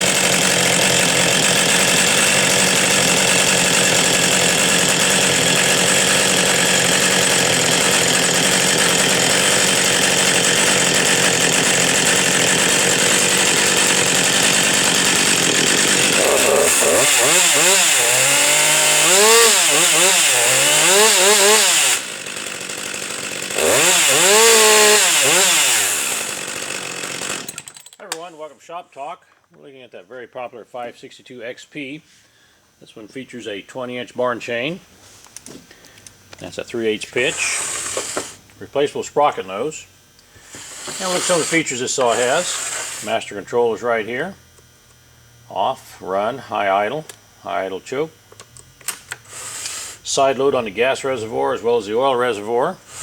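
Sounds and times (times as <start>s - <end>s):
chainsaw revving: 0.0s - 28.3s, 36.4s - 44.4s, 49.2s - 53.0s.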